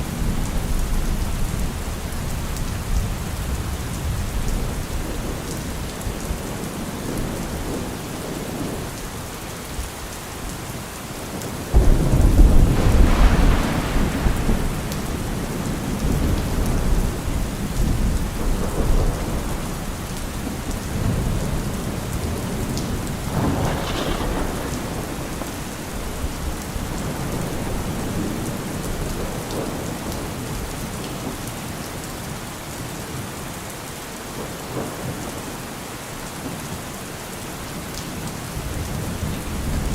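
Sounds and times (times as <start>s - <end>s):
rain falling on leaves: 0.0s - 39.9s
deep thunder rumble: 11.3s - 31.4s.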